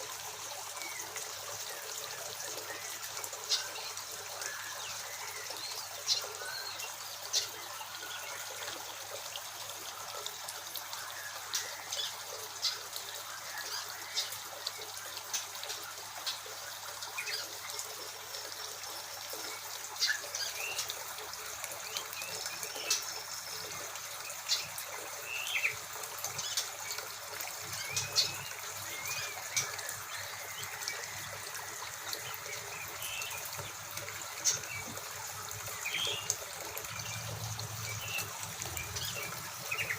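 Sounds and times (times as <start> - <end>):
running water trickling: 0.0 - 39.9
small birds chirping: 17.1 - 39.9.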